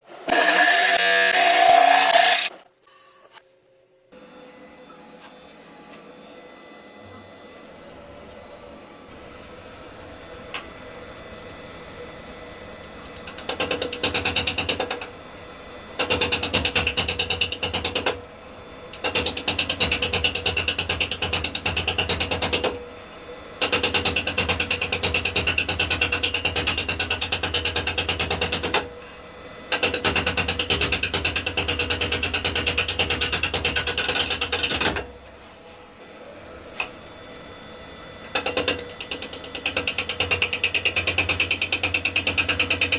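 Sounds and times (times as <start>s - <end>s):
wood lathe running: 0.1s - 2.6s, 36.5s - 42.9s.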